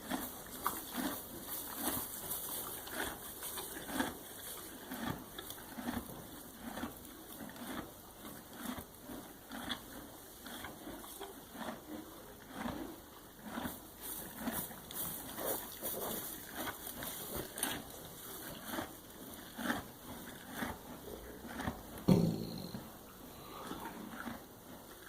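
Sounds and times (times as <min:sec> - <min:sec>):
thump: 0:22.1 - 0:22.9.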